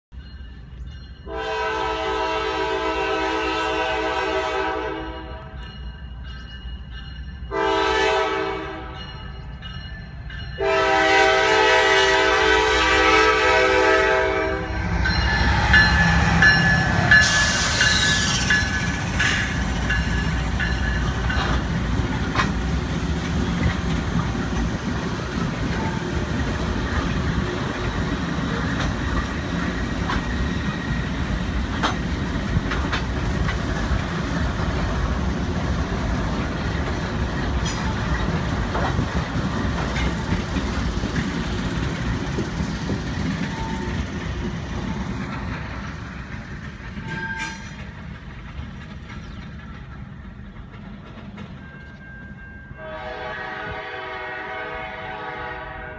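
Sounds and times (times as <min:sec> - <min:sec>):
locomotive air horn blasts: 0:01.3 - 0:05.6, 0:07.5 - 0:09.0, 0:10.6 - 0:14.9, 0:52.8 - 0:55.9
clattering train wheels: 0:03.8 - 0:55.0
locomotive engine rumble: 0:09.4 - 0:52.4.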